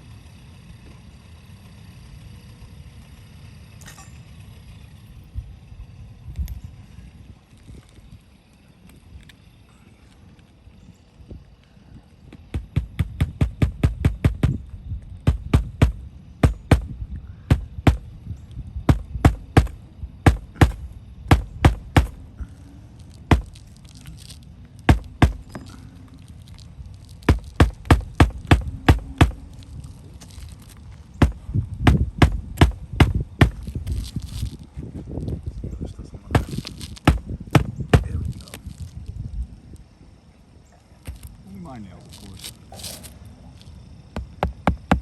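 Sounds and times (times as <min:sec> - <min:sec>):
hammer striking shingle roof: 0:12.4 - 0:18.2, 0:18.9 - 0:22.6, 0:23.3 - 0:23.6, 0:24.9 - 0:25.9, 0:27.2 - 0:29.6, 0:31.2 - 0:34.3, 0:36.3 - 0:38.4, 0:44.2 - 0:45.0.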